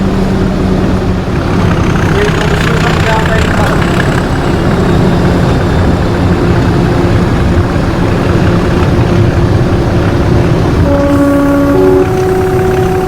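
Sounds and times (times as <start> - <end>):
diesel locomotive engine running: 0.0 - 13.0
train horn steady note: 10.7 - 13.0.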